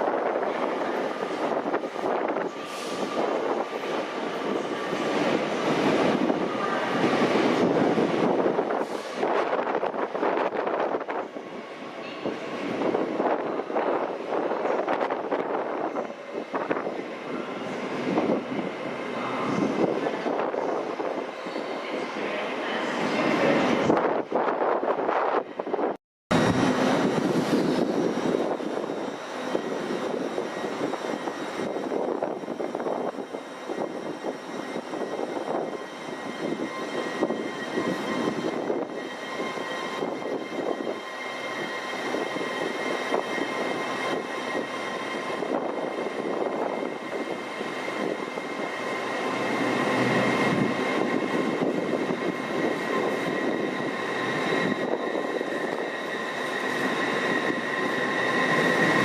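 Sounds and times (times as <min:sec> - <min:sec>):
train rumbling: 0:21.9 - 0:59.0.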